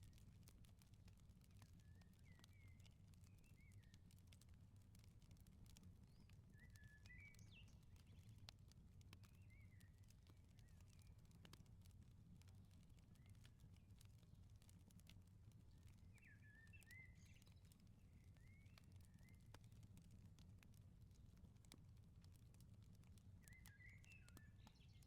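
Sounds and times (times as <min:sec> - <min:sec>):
wood fire crackling: 0:00.0 - 0:25.0
small birds chirping: 0:01.5 - 0:04.5, 0:05.7 - 0:08.5, 0:09.2 - 0:11.3, 0:15.6 - 0:19.8, 0:23.3 - 0:25.0.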